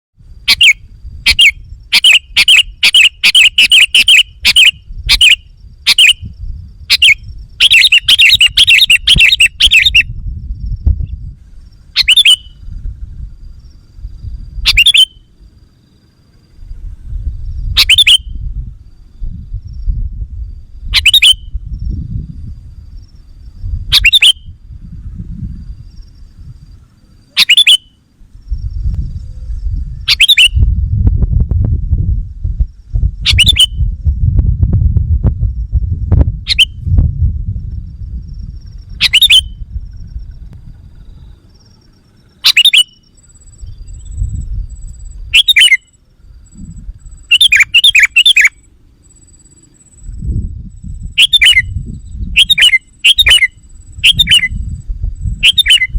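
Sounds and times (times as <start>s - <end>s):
bird chirping: 0.4s - 10.2s, 11.5s - 12.8s, 14.6s - 16.7s, 17.7s - 18.5s, 20.8s - 21.6s, 23.0s - 28.6s, 29.2s - 30.8s, 33.2s - 33.9s, 36.5s - 36.8s, 38.5s - 50.2s, 50.8s - 55.9s
low rumble: 10.0s - 14.7s, 18.4s - 27.3s, 28.2s - 42.0s, 43.4s - 45.4s, 46.2s - 47.3s, 53.6s - 55.4s.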